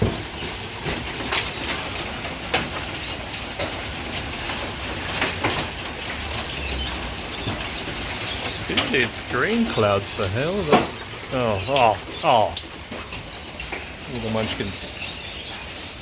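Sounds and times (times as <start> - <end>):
hail hissing on ground: 0.0 - 16.0.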